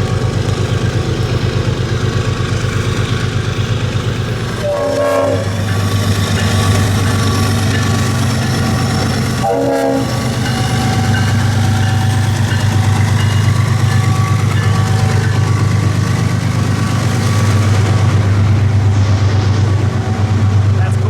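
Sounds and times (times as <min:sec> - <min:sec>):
locomotive engines droning: 0:00.0 - 0:21.0
train horn: 0:04.6 - 0:05.8, 0:09.4 - 0:11.3.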